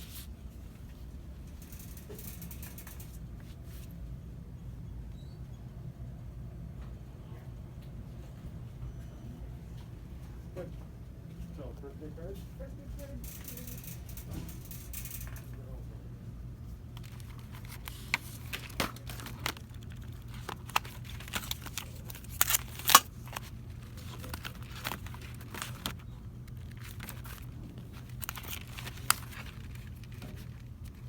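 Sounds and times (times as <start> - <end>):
plastic packaging crinkling: 17.0 - 31.0.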